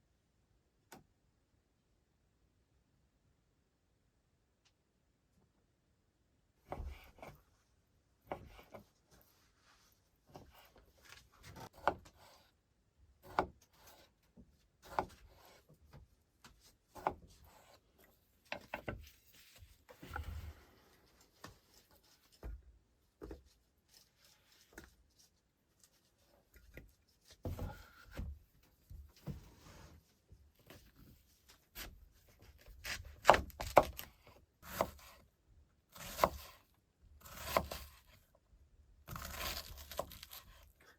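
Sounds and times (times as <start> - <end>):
wooden knocks and scraping: 26.6 - 30.0.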